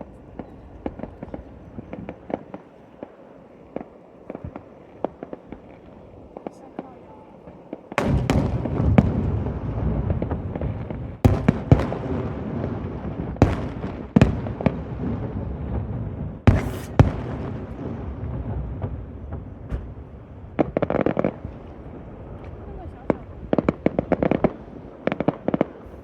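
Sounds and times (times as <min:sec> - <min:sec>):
rumble and crackle of fireworks: 0:00.0 - 0:26.0
firework shells bursting: 0:07.5 - 0:15.0, 0:16.4 - 0:22.5
sharp firework bangs: 0:07.7 - 0:26.0.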